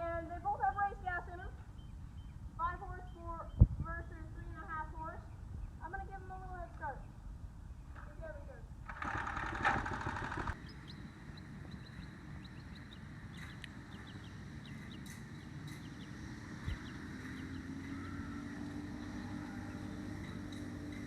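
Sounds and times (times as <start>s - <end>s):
birds chirping: 0.0s - 21.0s
small engines racing off: 8.9s - 10.7s, 16.0s - 21.0s.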